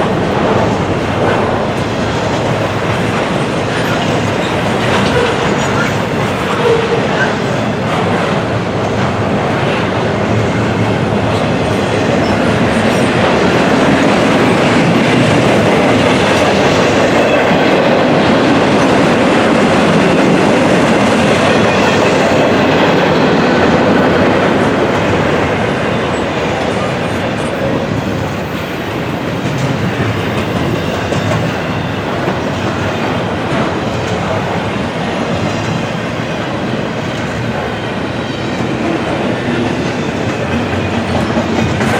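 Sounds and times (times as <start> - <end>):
train wheels on rails: 0.0 - 41.9.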